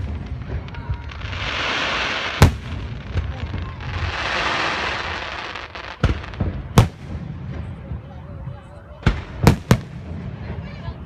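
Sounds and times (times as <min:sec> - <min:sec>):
fireworks hissing: 0:00.0 - 0:07.0
firework bangs: 0:00.0 - 0:11.0.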